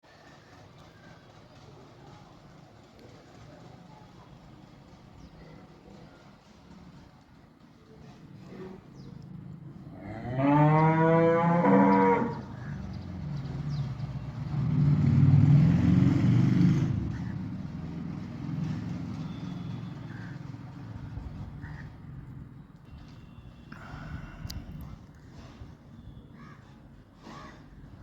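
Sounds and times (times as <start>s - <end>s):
cow mooing: 9.9s - 12.6s.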